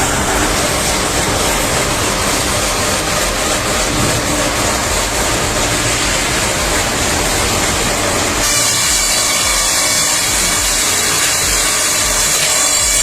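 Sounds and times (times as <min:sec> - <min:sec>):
low engine rumble: 0:00.0 - 0:09.7
engine-driven saw cutting timber: 0:00.0 - 0:13.0
steady high whine: 0:00.0 - 0:13.0.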